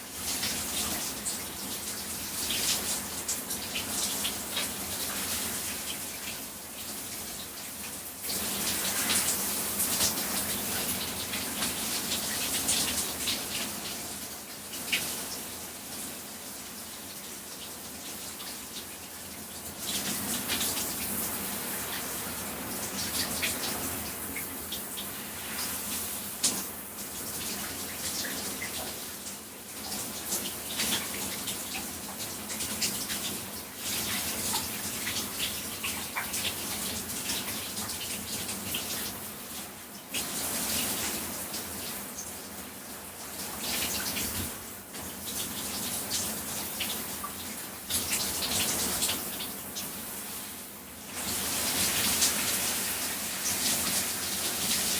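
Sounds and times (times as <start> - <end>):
shower spray splashing: 40.2 - 54.9.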